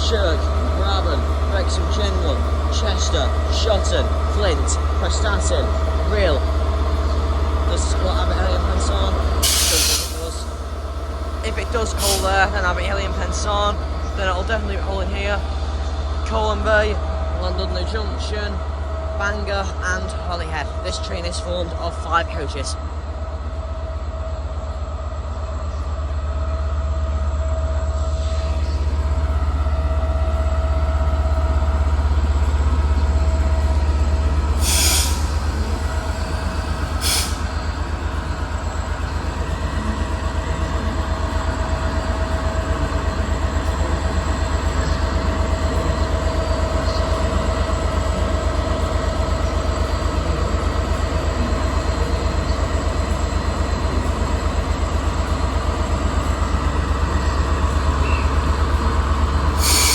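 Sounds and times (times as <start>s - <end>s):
diesel locomotive engine idling: 0.0s - 59.9s
short sharp hisses: 9.4s - 10.2s, 34.6s - 35.3s, 37.0s - 37.4s, 59.6s - 59.9s.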